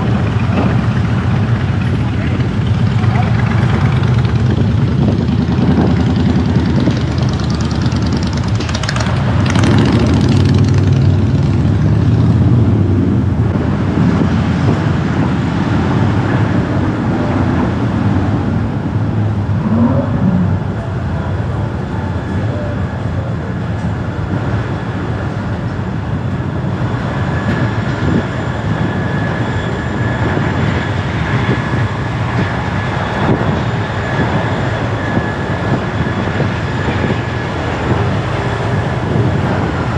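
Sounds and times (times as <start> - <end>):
car driving through traffic: 0.0 - 39.9.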